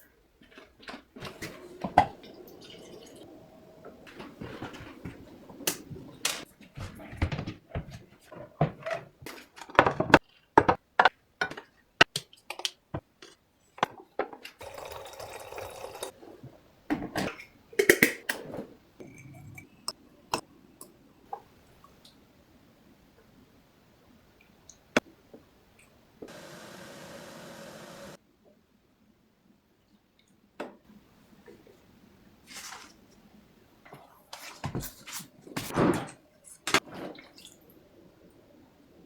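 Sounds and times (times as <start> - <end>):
water pouring: 1.2 - 6.2, 14.6 - 16.2, 36.8 - 37.8
cups and pots clinking: 14.6 - 16.1.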